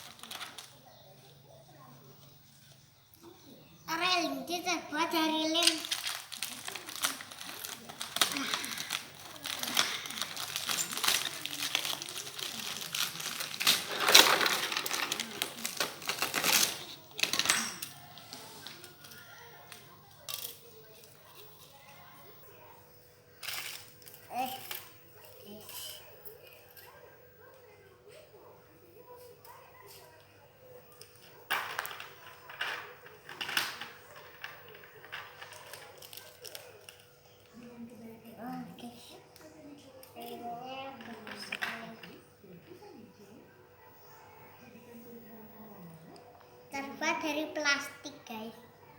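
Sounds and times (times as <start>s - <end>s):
plastic packaging crinkling: 0.0s - 0.8s, 5.0s - 21.9s, 23.4s - 25.3s, 31.0s - 37.6s
plastic track pieces scraping and clicking: 5.6s - 17.8s.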